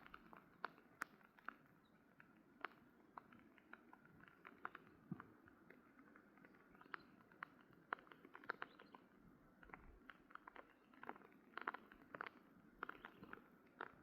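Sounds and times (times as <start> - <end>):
faint light taps and clicks: 0.0 - 14.0.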